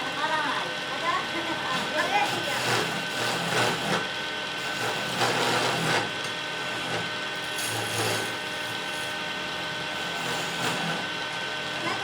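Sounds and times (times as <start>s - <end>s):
tool scraping spinning wood: 1.7s - 11.2s
lathe motor whine: 1.8s - 12.0s.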